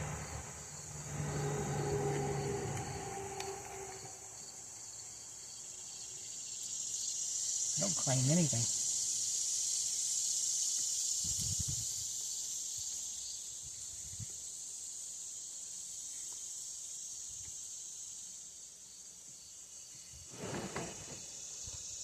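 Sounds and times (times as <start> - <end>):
high-pitched hiss: 0.0 - 22.0.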